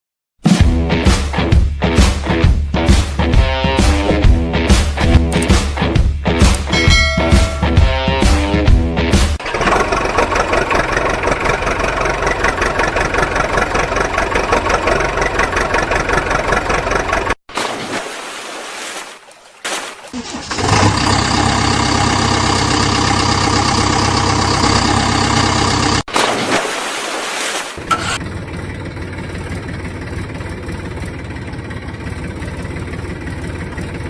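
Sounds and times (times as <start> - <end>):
engine idling: 9.4 - 17.4, 20.2 - 26.1, 27.8 - 34.0
vehicle engine chugging: 9.4 - 17.4, 20.2 - 26.1, 27.8 - 34.0.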